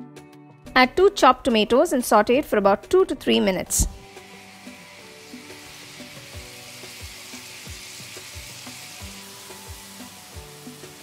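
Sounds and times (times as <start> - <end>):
soft background music with beat: 0.0 - 11.0
vegetables sizzling in a pan: 4.0 - 11.0.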